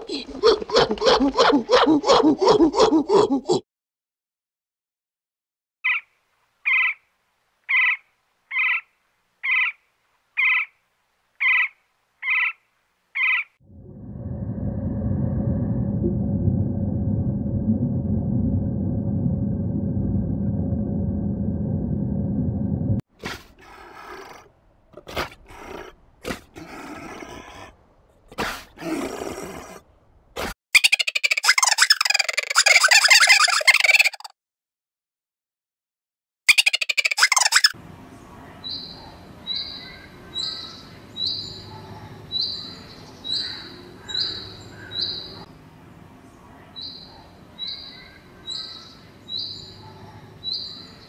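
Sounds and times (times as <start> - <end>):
loud low rumble: 13.6 - 23.0.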